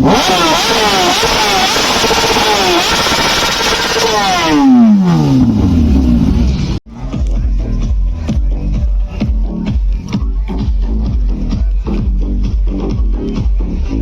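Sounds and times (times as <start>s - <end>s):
motorcycle engine at high revs: 0.0s - 6.8s.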